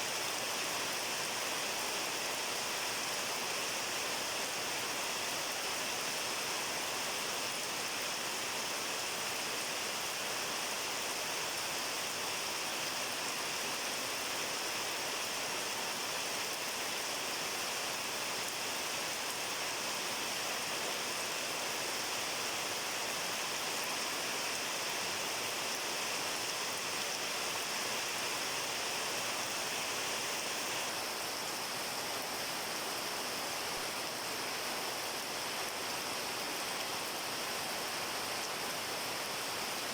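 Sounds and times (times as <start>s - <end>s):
steady rain falling: 0.1s - 39.9s.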